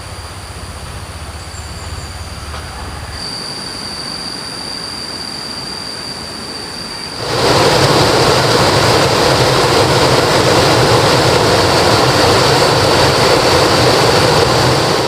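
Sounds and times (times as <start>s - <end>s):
thin high steady tone: 0.0s - 8.2s
river water rushing: 7.1s - 15.0s.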